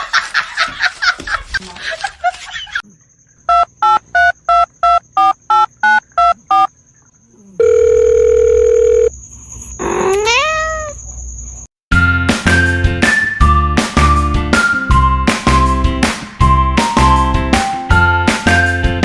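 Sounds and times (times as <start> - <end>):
steady phone tone: 7.6 - 9.1
cat meowing: 9.8 - 11.0.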